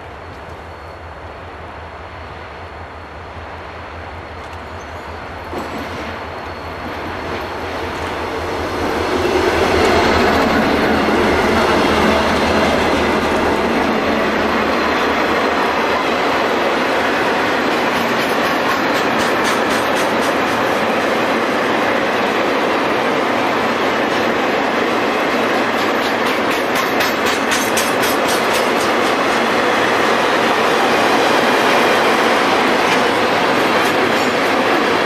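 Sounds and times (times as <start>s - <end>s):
train wheels clattering over rail joints: 4.4s - 13.8s, 16.7s - 21.4s, 24.1s - 35.0s.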